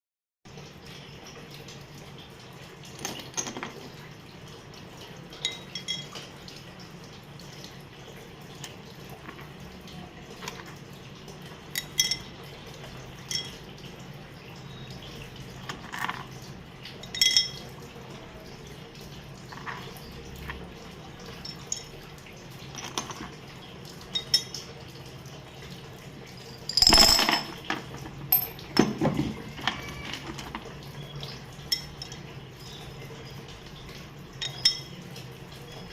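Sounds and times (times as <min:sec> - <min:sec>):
dishware clinking and knocking: 0:26.5 - 0:30.6.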